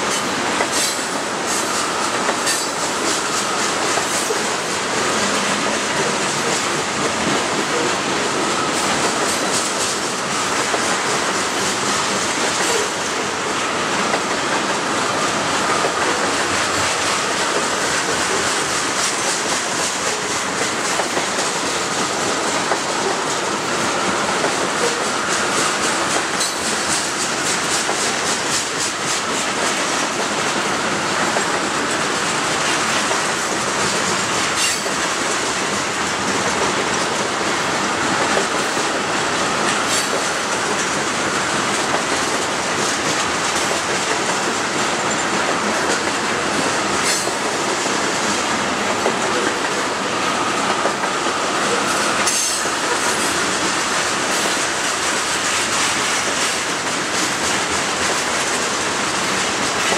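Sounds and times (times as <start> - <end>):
freight train rolling past: 0.0 - 59.9
wheels clicking over rail joints: 24.4 - 50.1.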